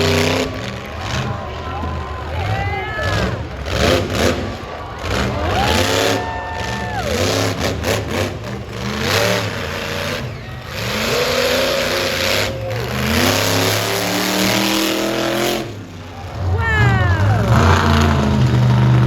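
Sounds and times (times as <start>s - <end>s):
truck engine revving hard: 0.0s - 19.0s.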